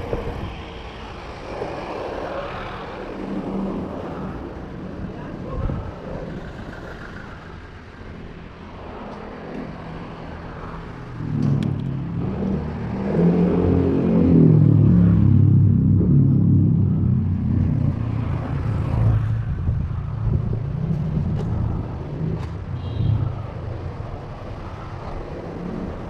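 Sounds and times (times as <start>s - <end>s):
motor vehicle engines running: 0.0s - 26.0s
louder engine approaching: 11.2s - 19.5s.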